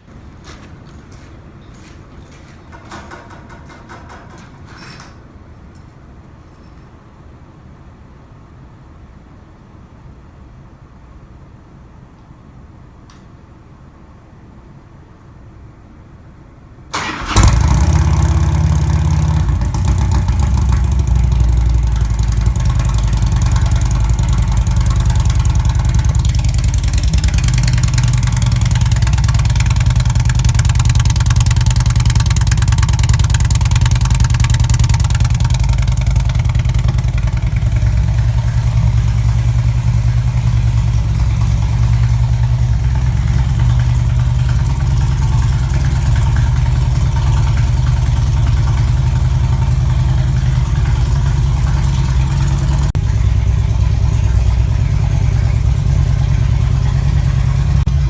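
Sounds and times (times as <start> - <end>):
motorcycle engine starting and idling: 2.2 - 5.2, 16.9 - 58.0.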